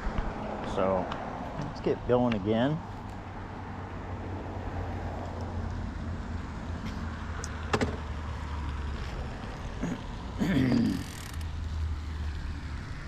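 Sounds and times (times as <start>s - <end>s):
e-bike motor rumble: 8.4s - 13.0s.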